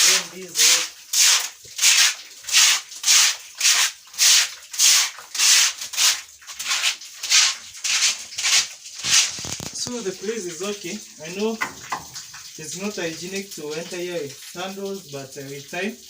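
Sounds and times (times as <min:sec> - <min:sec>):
broom sweeping floor: 0:00.0 - 0:09.7.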